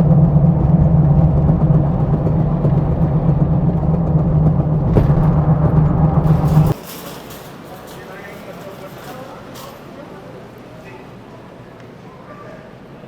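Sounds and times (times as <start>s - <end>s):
road noise: 0.0s - 6.8s
truck engine drone: 0.0s - 6.8s.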